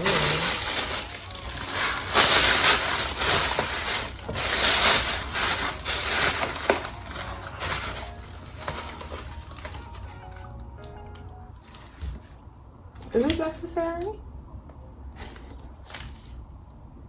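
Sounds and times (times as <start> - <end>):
packaging material rustling: 0.0 - 10.6.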